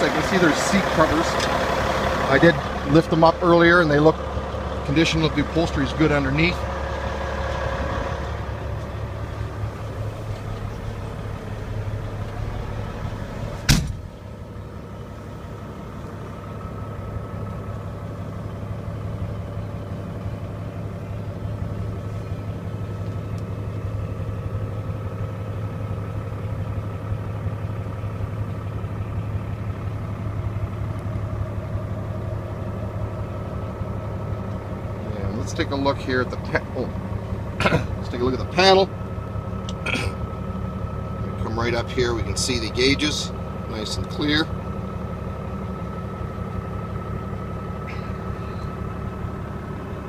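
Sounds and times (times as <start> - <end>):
diesel truck engine idling: 0.0 - 50.0
sharp thump: 13.6 - 14.1.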